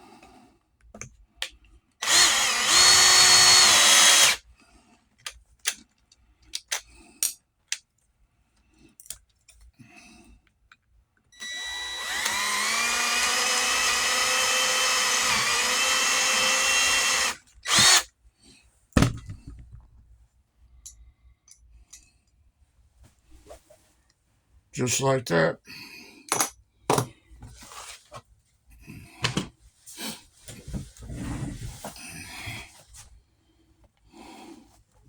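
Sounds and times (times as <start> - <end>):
electric drill spinning: 2.0 - 4.4, 11.4 - 18.1.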